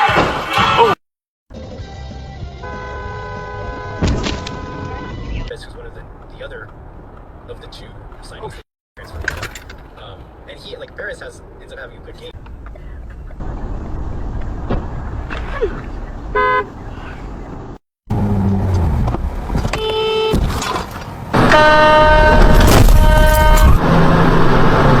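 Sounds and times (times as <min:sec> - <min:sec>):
engine and road noise: 0:01.5 - 0:25.0
car horns honking: 0:02.6 - 0:05.5, 0:16.3 - 0:16.8, 0:19.6 - 0:23.9.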